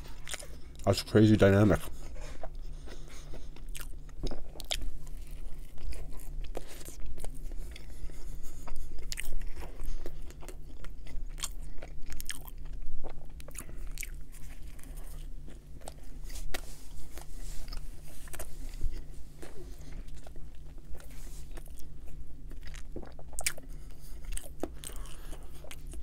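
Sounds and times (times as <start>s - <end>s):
chewing and biting sandwich: 0.0s - 26.0s
steady low hum: 0.0s - 26.0s.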